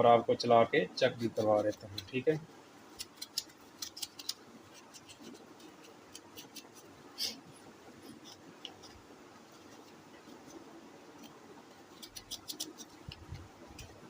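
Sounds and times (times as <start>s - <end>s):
scratching and clicking on mesh strainer: 3.0s - 6.9s, 11.9s - 14.0s.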